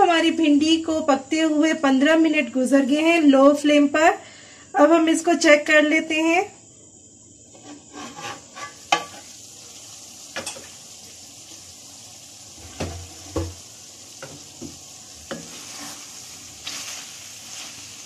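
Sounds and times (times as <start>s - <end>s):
food sizzling in a wok: 6.2s - 18.0s
wooden spatula knocking pan: 8.6s - 9.2s, 12.6s - 13.6s, 14.2s - 15.6s
metal lid clinking: 10.4s - 10.7s.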